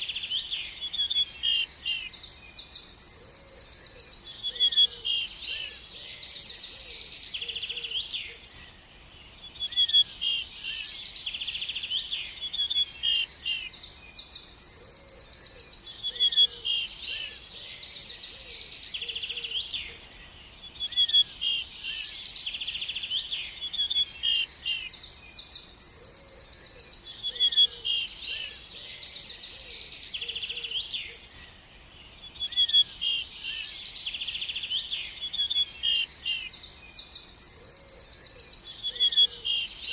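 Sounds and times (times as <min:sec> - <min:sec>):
birds singing: 0:00.0 - 0:39.9.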